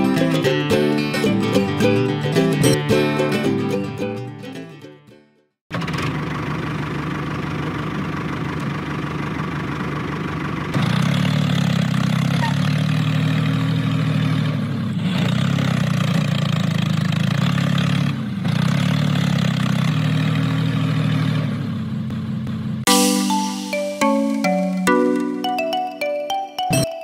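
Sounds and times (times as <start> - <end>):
tractor engine running: 5.7 - 22.9.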